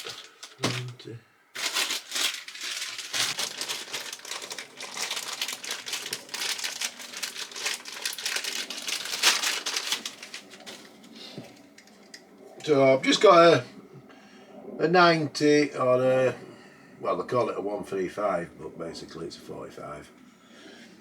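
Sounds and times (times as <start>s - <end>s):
crinkling and rustling: 0.0s - 12.3s.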